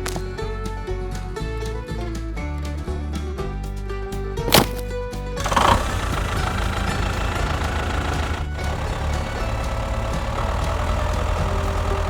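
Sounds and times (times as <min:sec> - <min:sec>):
tractor engine chugging: 0:04.5 - 0:12.0.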